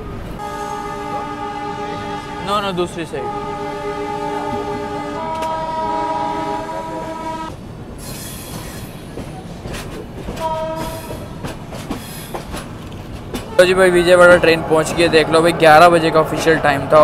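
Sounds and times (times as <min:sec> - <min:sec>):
train horn blast: 0:00.4 - 0:07.6, 0:10.4 - 0:11.3, 0:13.5 - 0:17.0
train wheels clicking over joints: 0:07.5 - 0:15.2.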